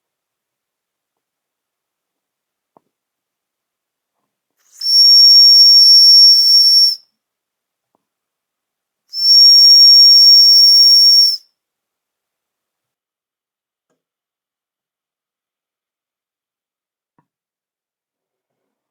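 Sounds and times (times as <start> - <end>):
high-pitched steam whistle: 4.7 - 7.0, 9.1 - 11.4.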